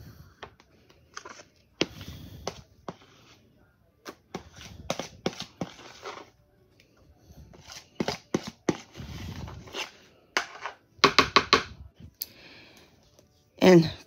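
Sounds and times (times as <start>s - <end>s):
wet scraping of whipped cream: 1.1s - 3.5s, 4.1s - 6.4s, 7.4s - 10.2s.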